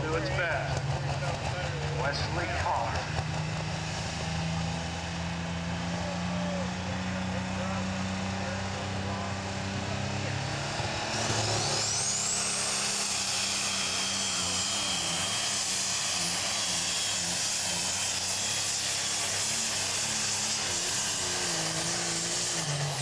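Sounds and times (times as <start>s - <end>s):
tractor engine at full power: 0.0s - 23.0s
turbochargers whistling: 10.1s - 23.0s.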